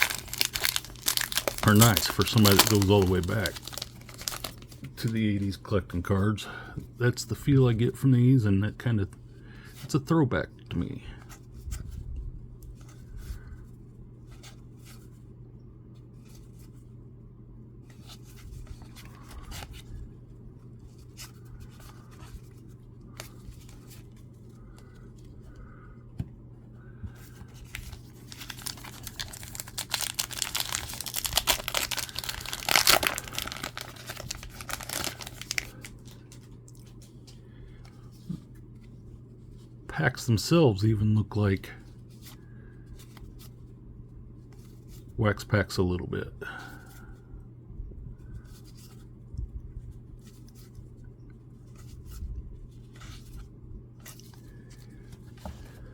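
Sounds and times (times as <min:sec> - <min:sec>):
card pack wrapper tearing: 0:00.0 - 0:04.8, 0:27.6 - 0:36.4
cards clicking and rustling: 0:00.0 - 0:05.2, 0:27.3 - 0:37.0.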